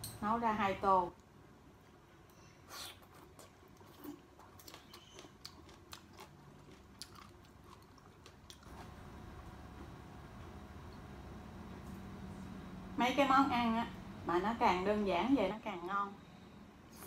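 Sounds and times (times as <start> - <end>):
chewing vegetables: 2.7 - 9.0.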